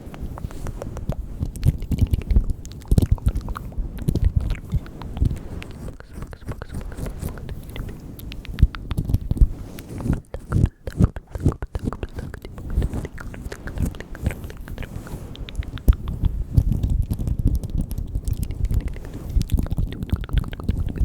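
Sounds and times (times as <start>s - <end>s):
soft low thumps: 0.0s - 21.0s
wet mouth clicks and smacks: 0.0s - 21.0s.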